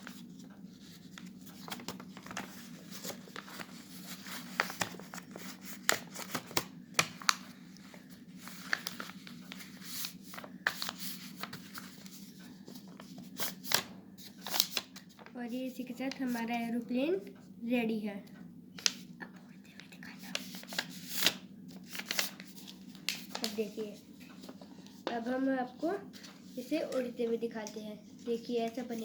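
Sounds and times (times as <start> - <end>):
paper crinkling and creasing: 0.0 - 16.6, 19.7 - 29.0
sharp paper snaps: 13.4 - 15.3, 18.8 - 19.0, 20.3 - 23.6.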